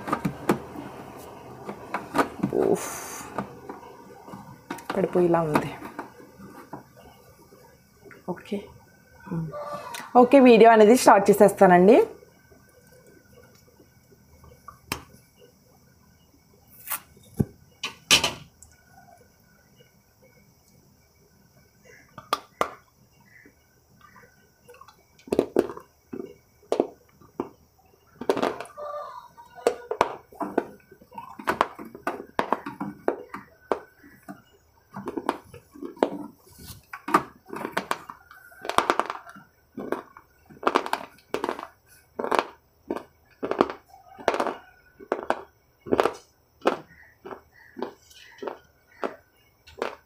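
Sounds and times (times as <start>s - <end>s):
crunchy sweet being chewed: 37.5s - 45.3s.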